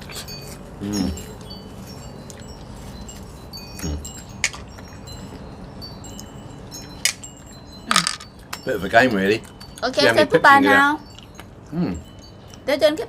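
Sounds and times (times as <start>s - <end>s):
wind chimes tinkling: 0.0s - 13.0s
person low vocal sounds: 0.8s - 1.2s, 3.8s - 4.1s.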